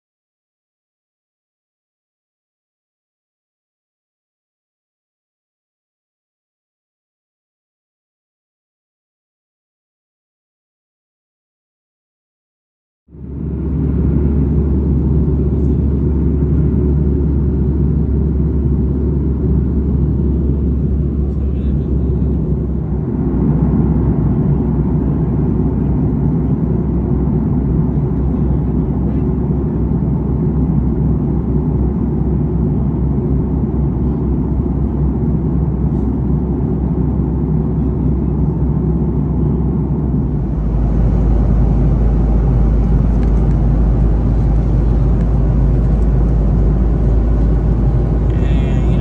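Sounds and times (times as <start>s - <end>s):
airliner cabin rumble: 13.1s - 49.0s.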